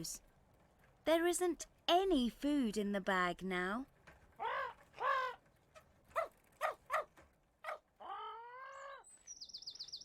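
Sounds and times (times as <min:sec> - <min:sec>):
dog barking: 0:06.1 - 0:07.9.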